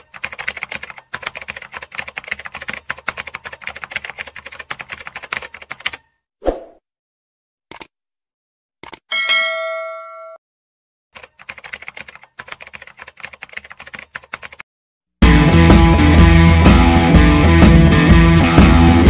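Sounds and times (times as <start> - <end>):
rapid keyboard typing clicks: 0.0 - 6.0, 11.2 - 14.6
notification bell ding: 9.1 - 10.4
loud guitar music: 15.2 - 19.0.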